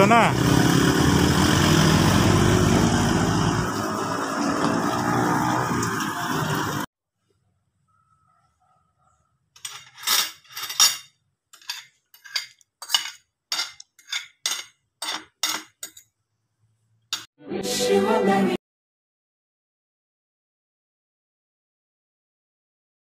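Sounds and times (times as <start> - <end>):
vehicle and road noise: 0.0 - 6.9.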